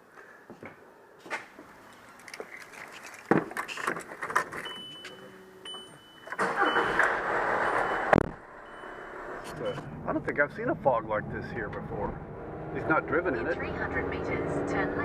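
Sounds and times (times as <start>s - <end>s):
car engine starting: 4.0s - 15.0s
car warning chime beeping: 4.6s - 10.0s.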